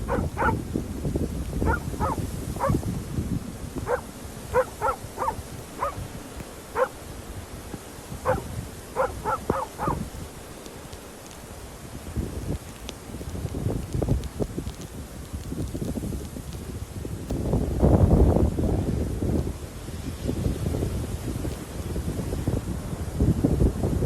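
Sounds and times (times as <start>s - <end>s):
dog barking: 0.0s - 3.0s, 3.8s - 7.1s, 7.7s - 11.5s.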